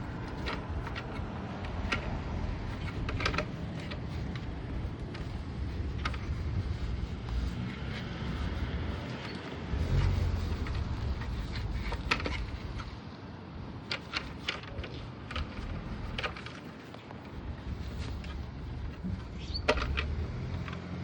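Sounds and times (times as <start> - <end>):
low rumbling noise: 0.0 - 13.0.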